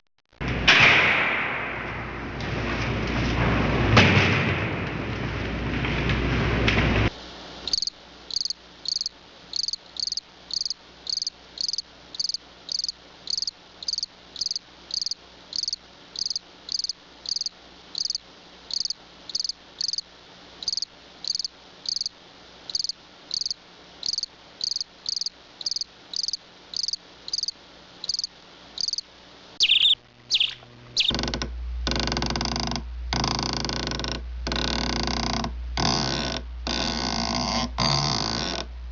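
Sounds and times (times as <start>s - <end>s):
cricket chirping: 7.7s - 22.1s, 22.7s - 31.3s.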